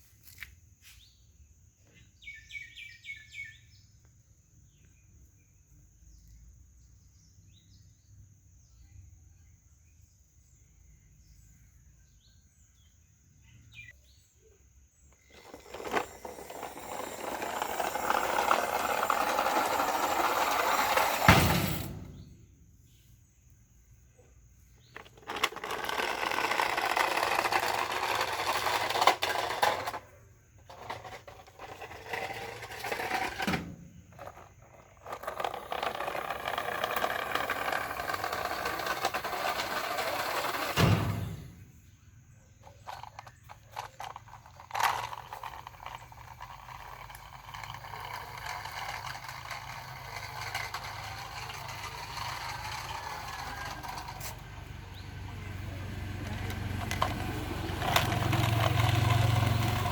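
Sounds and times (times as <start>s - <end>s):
toy car wheels scraping and whirring: 14.9s - 23.0s, 24.2s - 59.9s.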